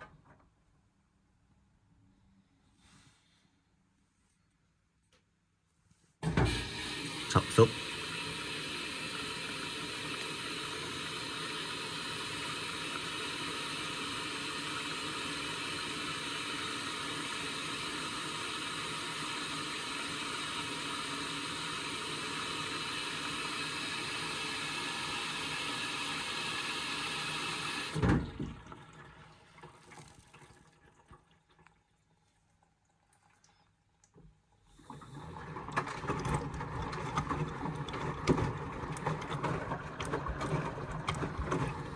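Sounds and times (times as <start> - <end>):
water rushing into washing machine: 6.2 - 31.9, 34.6 - 41.9.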